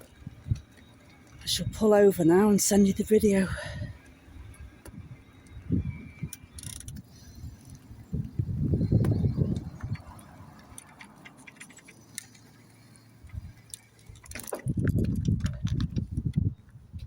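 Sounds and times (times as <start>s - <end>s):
wind buffeting microphone: 1.4s - 11.2s, 13.2s - 17.0s
small clicks and rattles: 6.2s - 7.8s, 8.8s - 16.4s.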